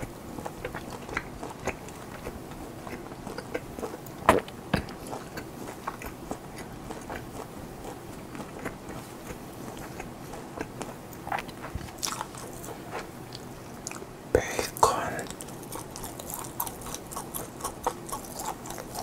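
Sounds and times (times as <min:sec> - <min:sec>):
chewing with wet mouth clicks: 0:00.0 - 0:14.1, 0:14.8 - 0:19.0.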